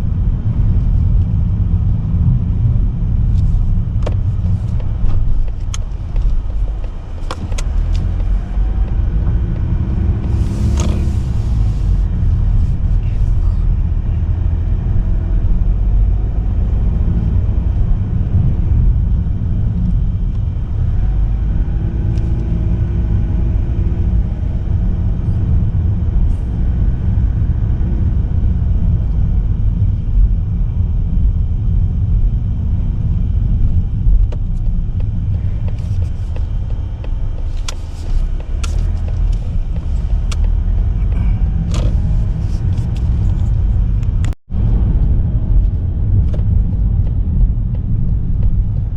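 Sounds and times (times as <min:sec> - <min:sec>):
car interior road and engine rumble: 0:00.0 - 0:48.9.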